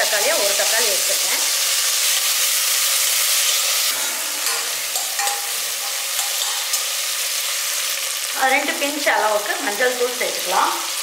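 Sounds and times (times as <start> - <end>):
onions and spices sizzling in oil: 0.0 - 11.0
stirring in a pan: 2.7 - 8.2.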